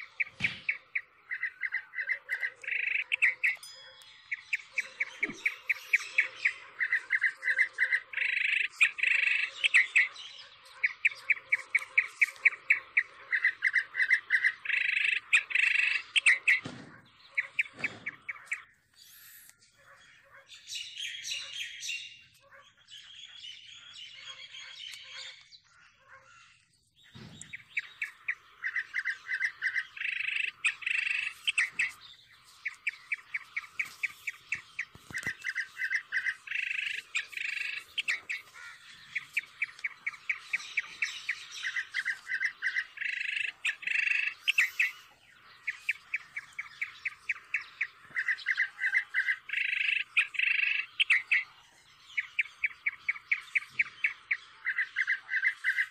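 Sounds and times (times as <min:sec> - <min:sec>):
birds chirping in trills: 0:00.0 - 0:55.9.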